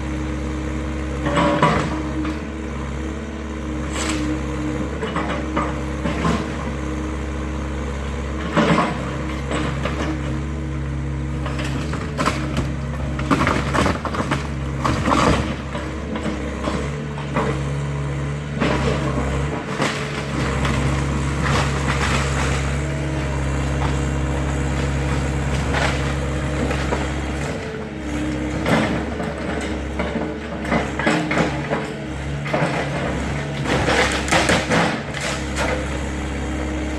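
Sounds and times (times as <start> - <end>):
diesel engine running: 0.0 - 36.9
wood cracking and crashing: 11.5 - 16.3, 18.6 - 27.7, 28.3 - 35.8.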